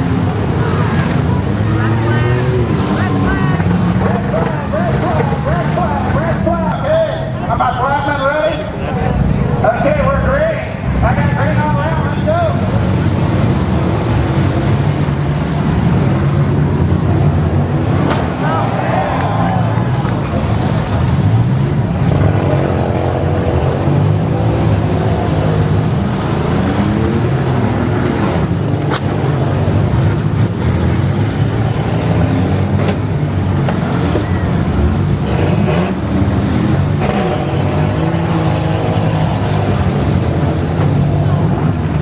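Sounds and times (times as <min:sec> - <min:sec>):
engines revving unevenly: 0:00.0 - 0:42.0
cars colliding with bangs: 0:17.9 - 0:18.6.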